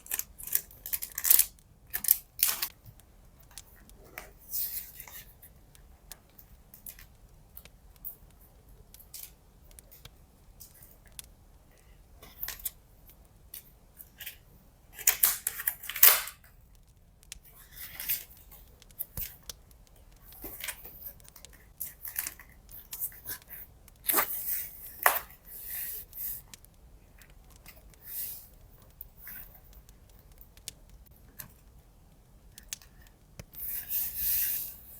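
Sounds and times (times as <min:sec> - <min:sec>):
paper and tape rustling: 0:00.0 - 0:05.4, 0:15.0 - 0:16.5
small clicks: 0:00.0 - 0:34.9.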